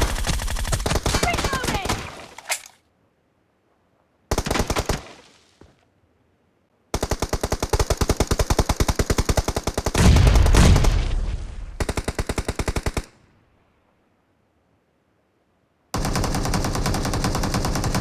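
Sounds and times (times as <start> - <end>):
video game automatic gunfire: 16.0 - 18.0.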